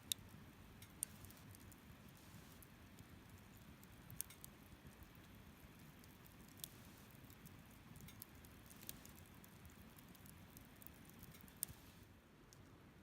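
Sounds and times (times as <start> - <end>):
campfire crackling: 0.0 - 12.6.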